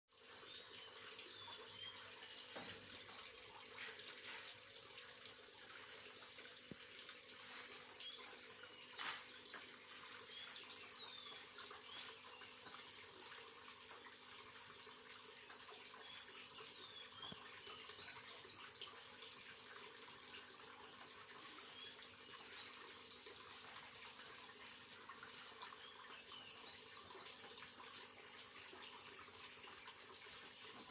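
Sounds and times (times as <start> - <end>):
water running from a well: 0.1 - 30.9
birds chirping: 0.3 - 13.4, 15.9 - 27.4.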